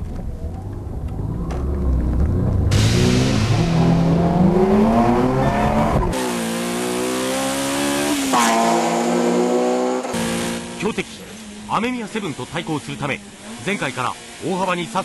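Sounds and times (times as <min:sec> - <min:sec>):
rotary engine revving: 0:01.2 - 0:10.9
four-cylinder engine revs dropping: 0:01.6 - 0:10.9.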